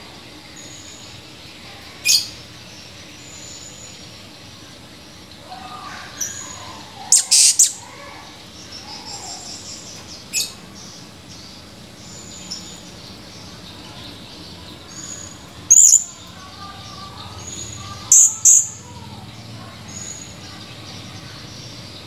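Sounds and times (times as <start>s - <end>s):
parrot shrill calls: 5.6s - 8.3s, 15.7s - 16.2s, 17.5s - 18.9s
soft high chirping: 6.4s - 8.0s, 15.1s - 19.0s.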